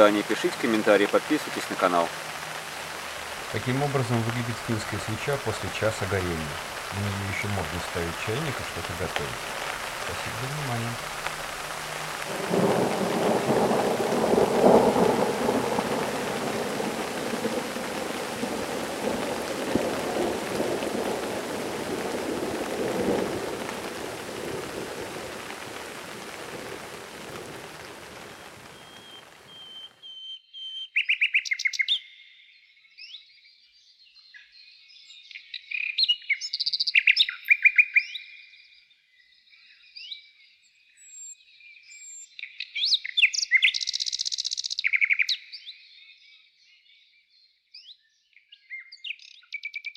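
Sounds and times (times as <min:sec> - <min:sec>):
rain: 0:00.0 - 0:30.1
songbirds chirping: 0:00.0 - 0:49.9
low thunder rumble: 0:03.2 - 0:28.8.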